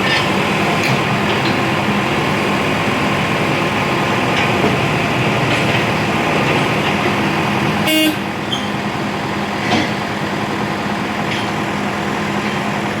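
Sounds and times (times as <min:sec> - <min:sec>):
heavy vehicle engine running: 0:00.0 - 0:13.0
horn toot: 0:07.8 - 0:08.3.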